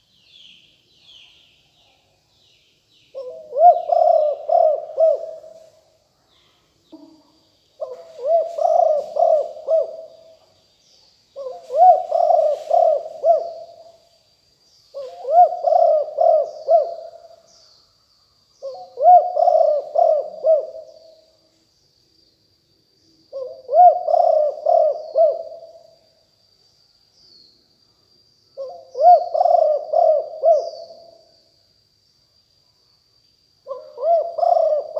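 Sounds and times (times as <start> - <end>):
dove cooing: 3.2 - 5.6, 7.8 - 10.4, 11.4 - 14.0, 14.9 - 17.4, 18.6 - 21.2, 23.4 - 25.8, 28.6 - 31.2, 33.7 - 34.9.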